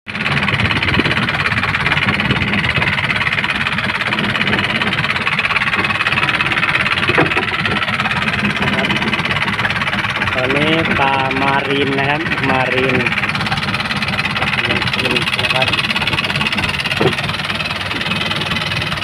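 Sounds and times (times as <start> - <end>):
boat engine rumbling: 0.1 - 19.0.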